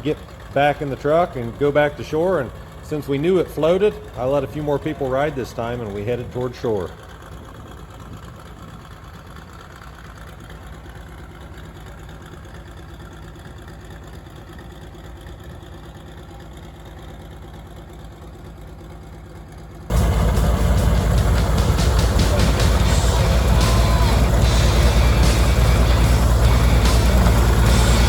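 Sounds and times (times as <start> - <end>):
diesel engine low hum: 0.0 - 28.0.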